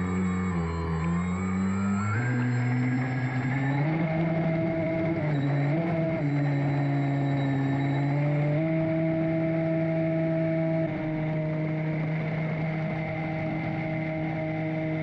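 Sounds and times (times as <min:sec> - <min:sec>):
electric motors whining: 0:00.0 - 0:09.2.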